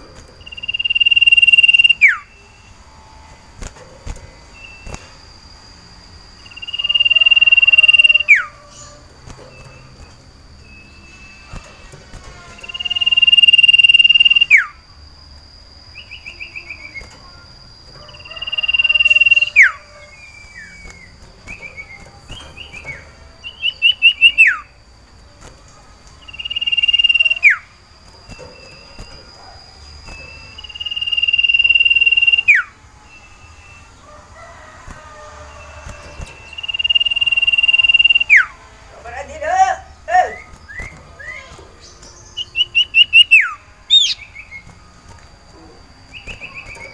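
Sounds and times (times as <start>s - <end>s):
bird whistling call: 0.4s - 2.3s, 6.4s - 9.9s, 12.6s - 14.8s, 18.2s - 24.7s, 26.2s - 27.7s, 30.1s - 33.9s, 36.0s - 38.6s, 42.2s - 44.6s
bird trills: 0.4s - 3.4s, 6.4s - 14.8s, 15.9s - 24.8s, 26.2s - 34.0s, 35.4s - 44.8s, 46.0s - 46.9s.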